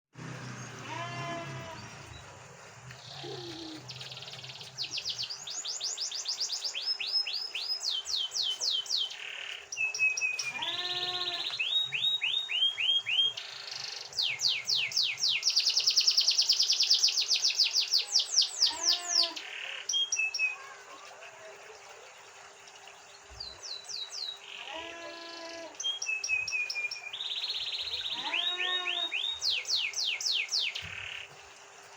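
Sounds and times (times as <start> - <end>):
canary singing trills: 3.0 - 20.8, 23.6 - 31.3.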